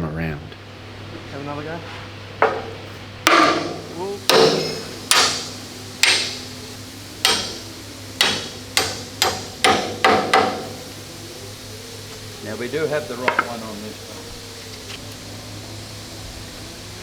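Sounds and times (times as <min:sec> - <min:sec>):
hammer knocking metal pins: 0:02.4 - 0:06.5, 0:07.2 - 0:11.0.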